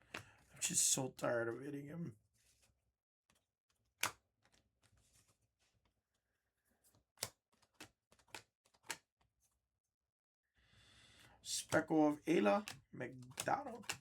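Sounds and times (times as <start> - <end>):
trading cards clicking and snapping: 7.2 - 9.1, 11.5 - 14.0.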